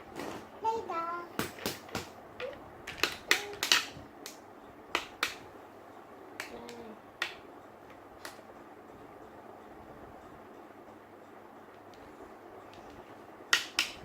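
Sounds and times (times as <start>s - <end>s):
plastic toys clicking on hard surface: 1.4s - 4.0s.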